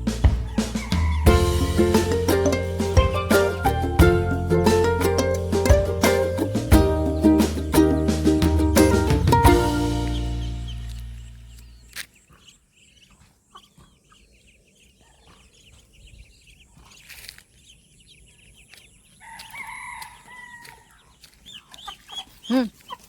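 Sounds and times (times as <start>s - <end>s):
duckling peeping: 6.7s - 17.9s.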